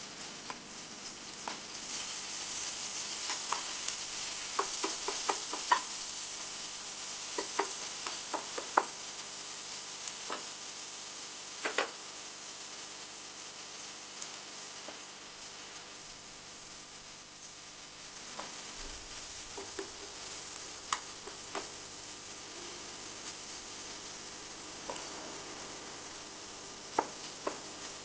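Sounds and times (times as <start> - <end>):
food sizzling in hot oil: 0.0 - 28.0.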